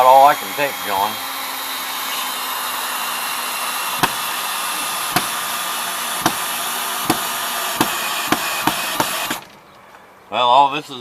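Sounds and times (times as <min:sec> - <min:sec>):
steady rushing machine noise: 0:00.0 - 0:09.5
sharp hammer knocks: 0:04.0 - 0:04.3, 0:05.1 - 0:05.4, 0:06.2 - 0:09.2.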